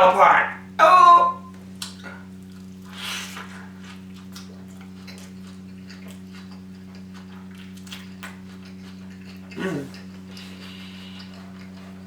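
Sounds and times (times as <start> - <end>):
low electrical hum: 0.0 - 12.0
chewing with wet mouth clicks: 1.8 - 12.0.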